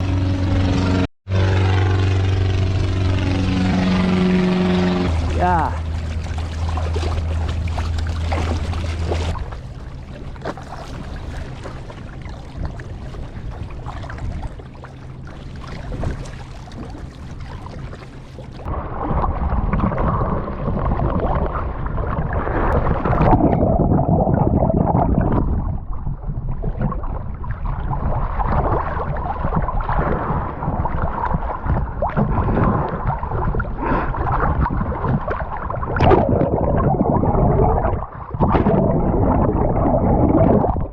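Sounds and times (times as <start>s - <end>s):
steady low hum: 0.0s - 20.5s
water splashing and gurgling: 0.0s - 40.9s.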